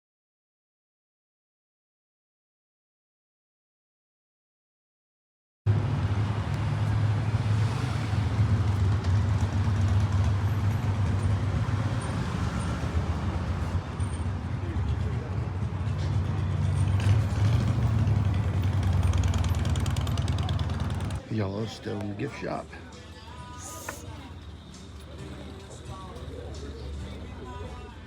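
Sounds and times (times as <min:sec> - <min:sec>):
vehicle engine running: 0:05.7 - 0:21.3
street traffic noise: 0:05.7 - 0:28.0.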